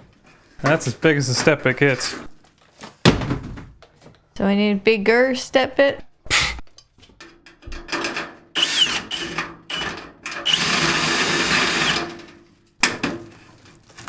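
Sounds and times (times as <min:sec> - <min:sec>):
power drill whining: 0:08.6 - 0:12.3.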